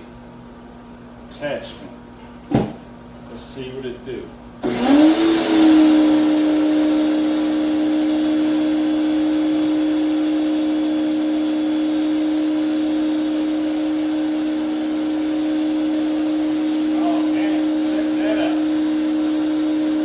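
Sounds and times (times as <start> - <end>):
pressure washer humming: 4.6 - 20.0.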